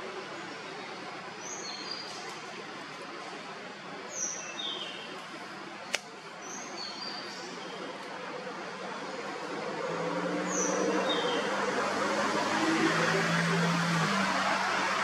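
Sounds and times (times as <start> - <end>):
sharp click: 5.9 - 6.1.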